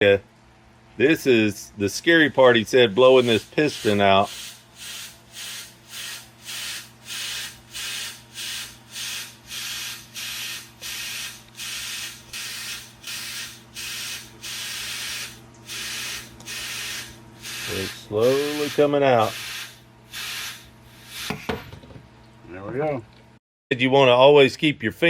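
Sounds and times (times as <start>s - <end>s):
air blow gun hissing blasts: 2.9s - 21.6s.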